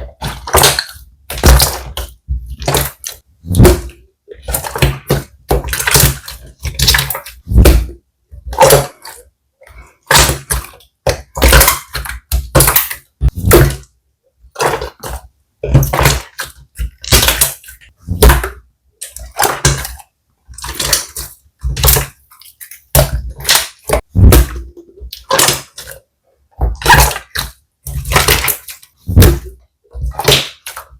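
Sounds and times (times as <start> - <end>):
slime squishing and crackling: 0.0 - 13.9, 14.5 - 26.0, 26.6 - 30.9.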